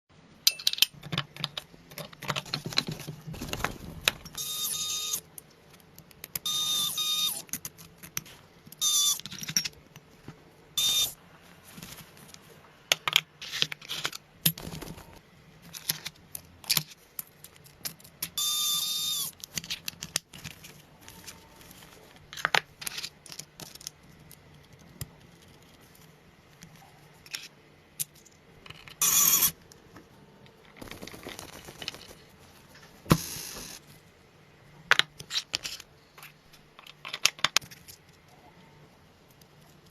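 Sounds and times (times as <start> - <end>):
small electric tool whine: 4.4 - 5.2, 6.5 - 7.4, 8.8 - 9.2, 10.8 - 11.2, 18.4 - 19.3, 29.0 - 29.5
small metal parts clinking: 8.8 - 9.8.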